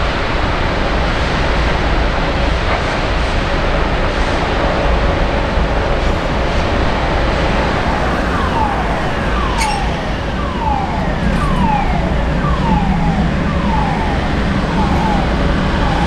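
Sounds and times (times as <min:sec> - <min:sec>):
train rumbling: 0:00.0 - 0:16.0
falling warning tone: 0:07.8 - 0:16.0.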